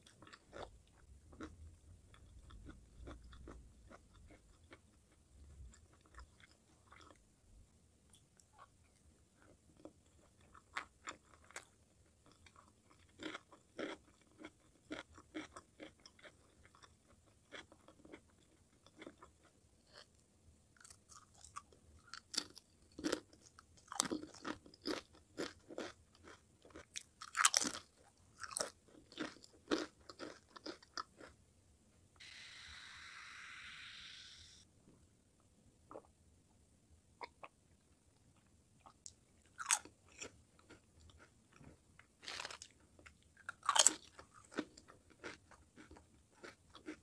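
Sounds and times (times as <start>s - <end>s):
soft chewing: 0.0s - 7.3s, 8.0s - 20.2s, 20.8s - 31.4s, 37.2s - 47.0s
crunching potato chips: 20.8s - 31.3s, 39.5s - 47.0s
steady hiss: 32.2s - 34.7s.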